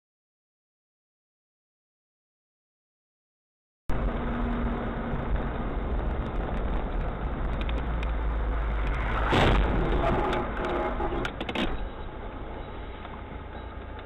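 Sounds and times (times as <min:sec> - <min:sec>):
car engine rumble: 0:03.9 - 0:14.0
road noise: 0:03.9 - 0:14.0.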